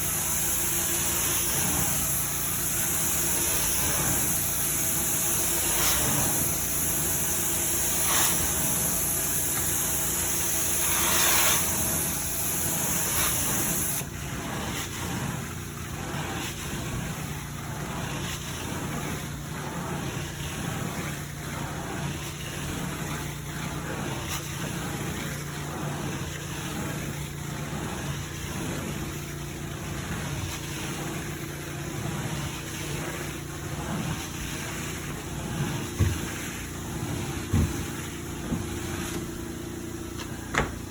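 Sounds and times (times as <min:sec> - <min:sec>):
carpet cleaner suction hiss: 0:00.0 - 0:14.1
carpet cleaner machine hum: 0:00.0 - 0:40.9.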